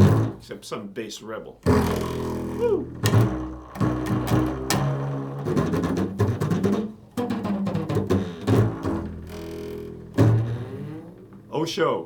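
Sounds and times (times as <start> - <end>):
prepared guitar plucked notes: 1.6 - 7.4.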